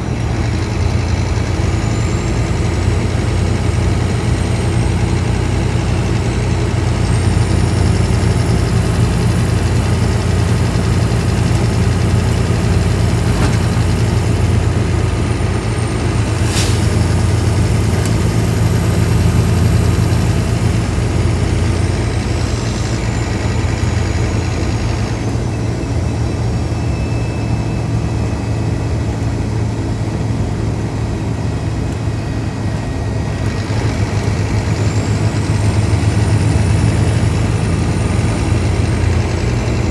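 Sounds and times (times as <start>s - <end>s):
bus diesel engine running: 0.0s - 39.9s
thin high whistle: 26.7s - 28.2s.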